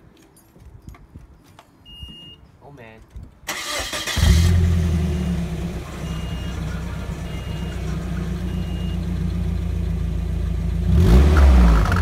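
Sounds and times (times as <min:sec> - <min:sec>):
car engine idling: 0:03.6 - 0:10.9.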